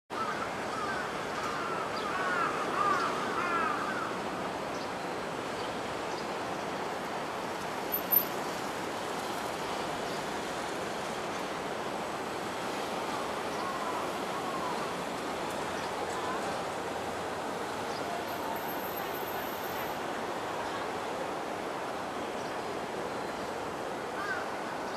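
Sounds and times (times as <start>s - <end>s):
short chirps: 7.9s - 8.4s
station platform background noise: 13.6s - 24.9s.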